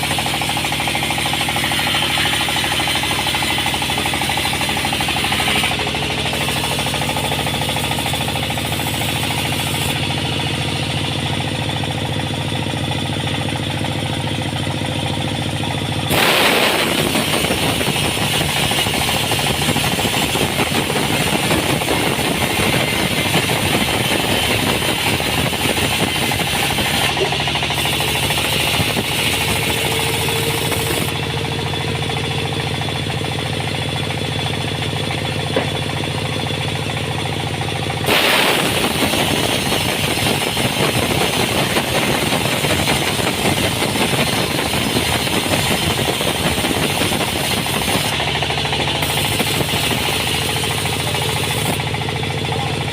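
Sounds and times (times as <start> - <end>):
rasping saw noise: 0.0 - 10.8, 16.1 - 31.2, 38.0 - 48.3
engine hum: 0.0 - 52.9.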